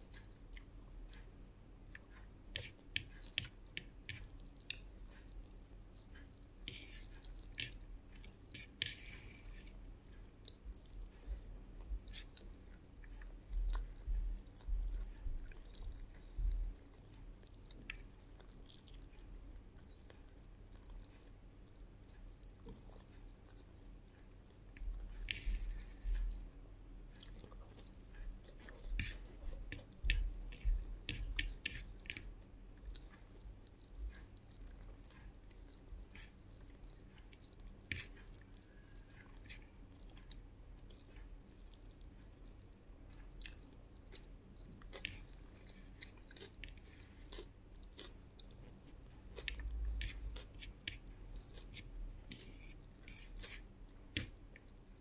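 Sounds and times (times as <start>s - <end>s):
person chewing with wet mouth smacks: 0.0s - 8.8s, 9.4s - 26.5s, 27.1s - 54.9s.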